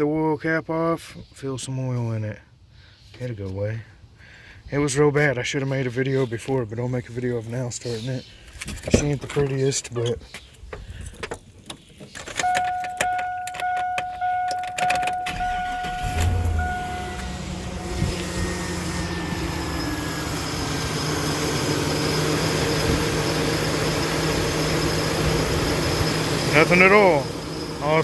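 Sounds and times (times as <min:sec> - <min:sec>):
engine cranking and idling: 0:08.4 - 0:28.0
truck warning chime dinging: 0:12.2 - 0:28.0.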